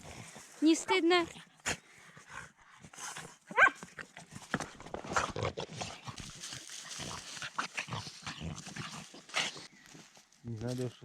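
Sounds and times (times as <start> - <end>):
rustling and scuffling: 2.8 - 11.0.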